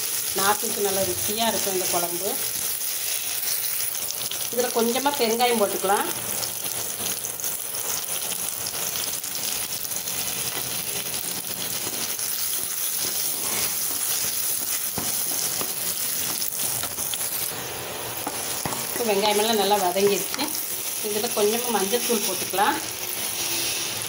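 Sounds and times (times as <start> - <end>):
food sizzling in hot oil: 0.0 - 24.0
wooden spatula scraping: 11.8 - 17.2, 23.1 - 24.0.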